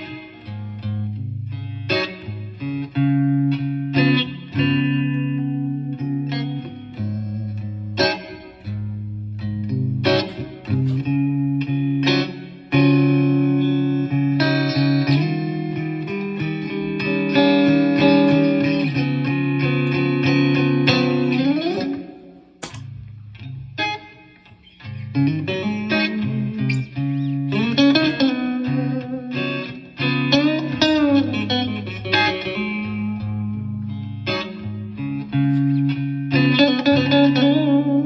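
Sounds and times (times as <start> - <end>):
electric guitar through amplifier: 0.0 - 38.0.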